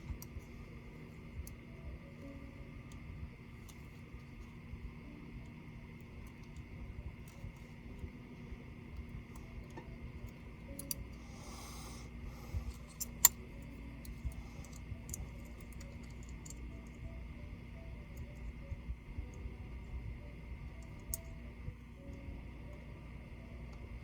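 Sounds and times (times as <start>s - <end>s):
faint steady hum: 0.0s - 24.0s
laptop parts clicking: 12.6s - 17.1s.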